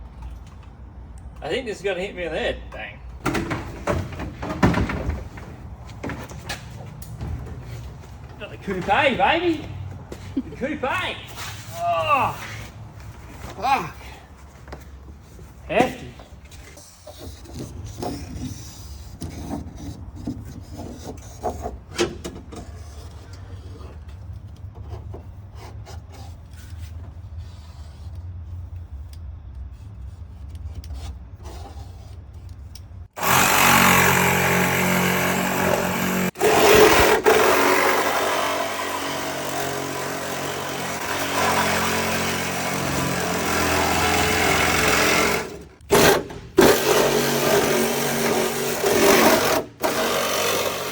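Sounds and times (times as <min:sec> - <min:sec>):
hand tools and car parts clattering: 0:02.6 - 0:27.2, 0:32.4 - 0:50.9
loud power tool running: 0:33.2 - 0:50.9.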